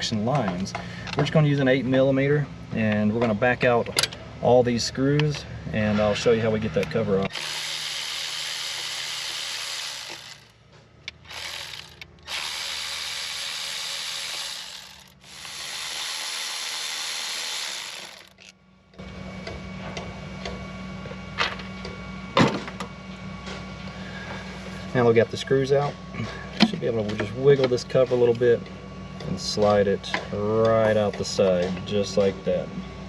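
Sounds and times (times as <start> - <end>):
power driver running: 6.3 - 22.0.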